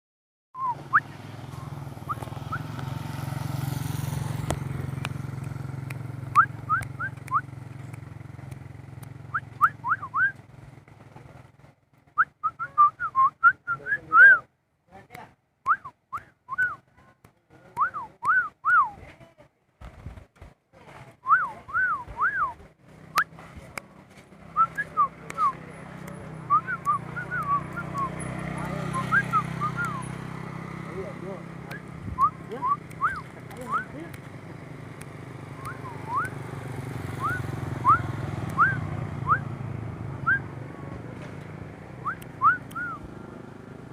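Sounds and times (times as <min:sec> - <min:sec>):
myna whistling: 0:00.6 - 0:02.7, 0:06.3 - 0:07.6, 0:09.2 - 0:10.4, 0:12.2 - 0:14.5, 0:15.7 - 0:16.9, 0:21.2 - 0:23.4, 0:24.6 - 0:25.6, 0:26.4 - 0:28.2, 0:28.8 - 0:30.2, 0:31.6 - 0:34.0, 0:35.6 - 0:36.4, 0:37.1 - 0:39.5, 0:40.2 - 0:40.5, 0:42.0 - 0:43.1.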